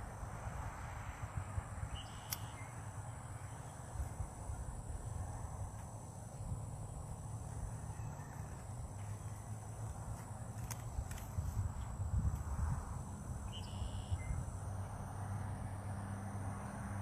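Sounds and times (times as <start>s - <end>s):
wind rumbling on microphone: 0.0s - 15.1s
distant birds calling: 1.9s - 4.4s, 13.4s - 14.9s.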